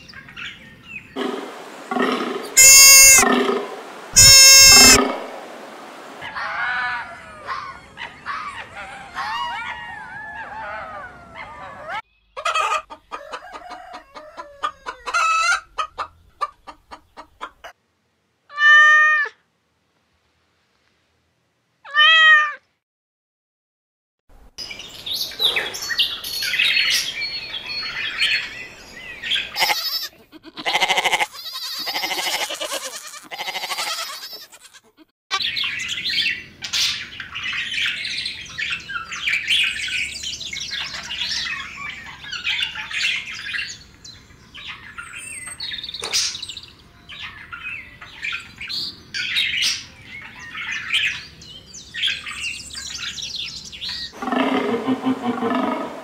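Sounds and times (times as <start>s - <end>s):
bird calls: 0.0s - 17.5s, 24.6s - 30.1s, 44.6s - 46.6s, 47.2s - 56.0s
low roar: 1.2s - 2.6s, 3.2s - 4.0s, 54.2s - 56.0s.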